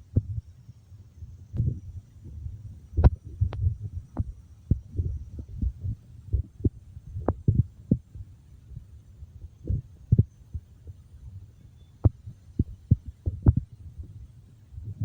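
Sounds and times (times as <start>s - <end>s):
low thuds and bumps: 1.6s - 8.0s.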